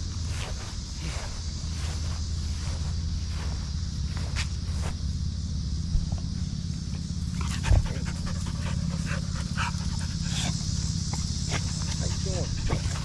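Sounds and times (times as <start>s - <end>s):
dog panting hard: 7.3s - 13.0s.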